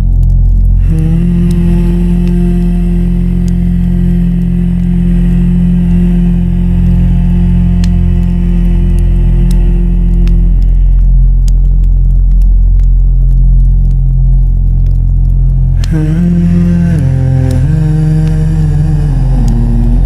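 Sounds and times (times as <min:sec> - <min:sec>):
ambient droning pad: 0:00.0 - 0:20.0
campfire crackling: 0:00.0 - 0:20.0
held synth note: 0:00.8 - 0:11.2.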